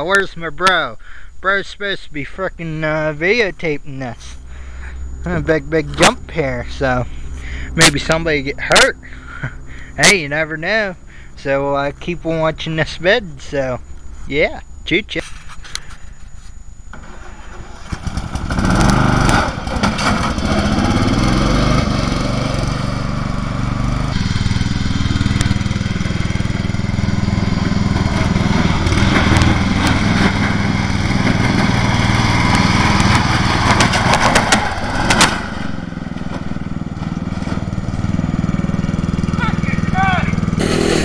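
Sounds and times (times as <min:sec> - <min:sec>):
lawn mower engine running: 0:02.7 - 0:14.3, 0:15.2 - 0:41.0
sharp clatter: 0:16.9 - 0:21.0, 0:24.1 - 0:36.6.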